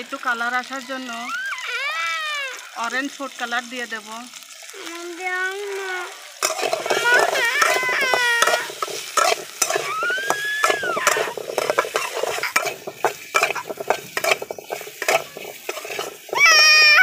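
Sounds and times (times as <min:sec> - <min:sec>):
potatoes frying in oil: 0:00.0 - 0:17.0
loud high-pitched call: 0:16.4 - 0:17.0.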